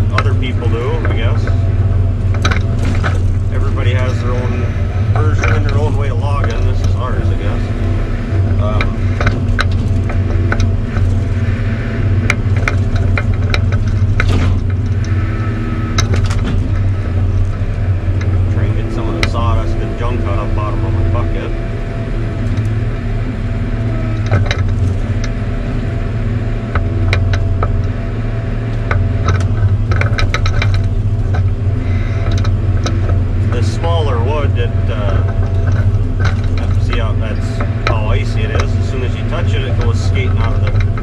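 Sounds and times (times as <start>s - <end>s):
diesel engine running: 0.0s - 41.0s
machine knocks and clicks: 2.3s - 21.5s, 28.7s - 34.1s, 34.9s - 41.0s.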